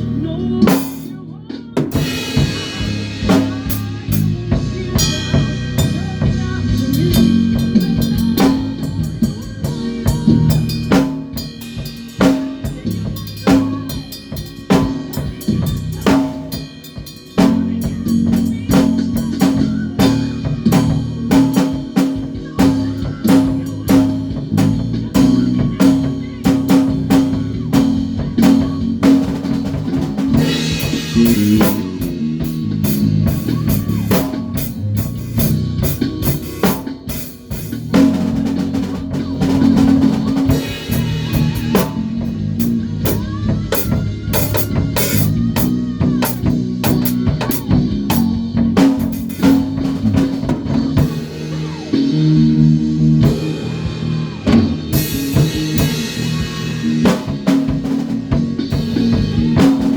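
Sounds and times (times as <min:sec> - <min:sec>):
bass guitar line: 0:00.0 - 0:59.9
drum kit playing: 0:00.0 - 0:59.9.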